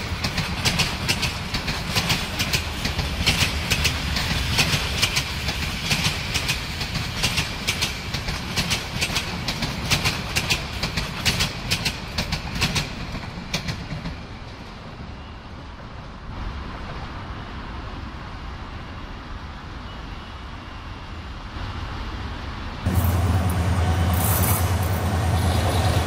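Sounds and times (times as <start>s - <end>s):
wheels clicking over rail joints: 0.0s - 14.8s
low train rumble: 0.0s - 26.0s.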